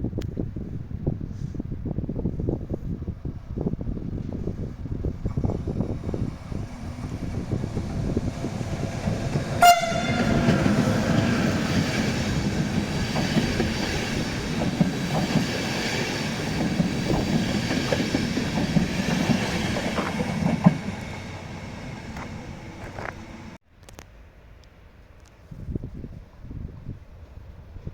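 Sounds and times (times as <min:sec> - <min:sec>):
train rumble: 0:00.9 - 0:23.6
wheels clacking over rail joints: 0:05.2 - 0:23.6
train horn toot: 0:09.5 - 0:11.7.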